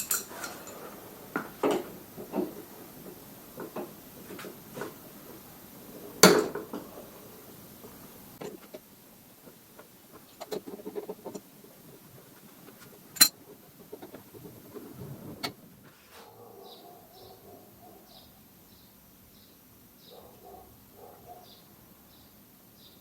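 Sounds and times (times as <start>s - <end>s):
metal tools clinking: 0.0s - 0.9s.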